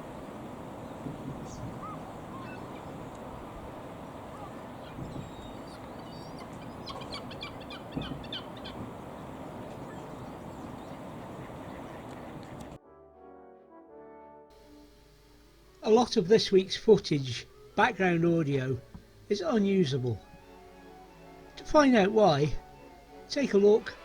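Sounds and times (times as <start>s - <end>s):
steady rushing background: 0.0s - 12.8s
waterfowl calling: 0.6s - 12.8s.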